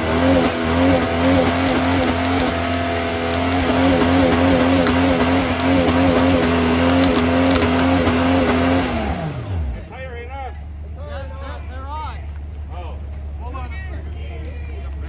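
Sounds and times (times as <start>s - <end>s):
car engine at high revs: 0.0s - 9.9s.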